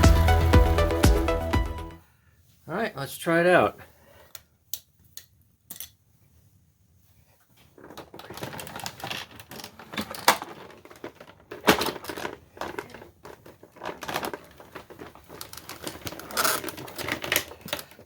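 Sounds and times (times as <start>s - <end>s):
plastic vacuum parts rattling: 7.6s - 18.0s.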